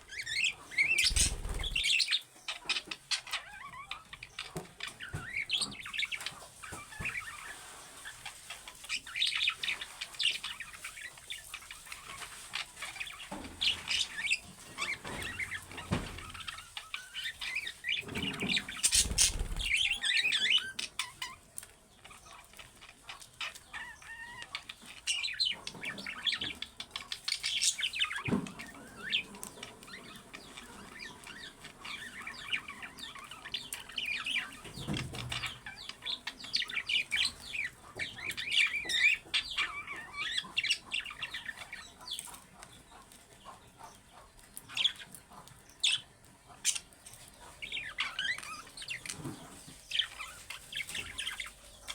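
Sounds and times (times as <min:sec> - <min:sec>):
budgerigars chirping: 0:00.1 - 0:21.4, 0:29.9 - 0:51.9
wing flutters: 0:00.9 - 0:02.0, 0:18.0 - 0:20.2.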